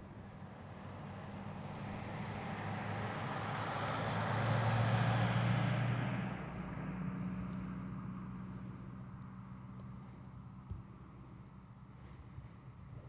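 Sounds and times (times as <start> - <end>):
road vehicle passing by: 0.3 - 10.6.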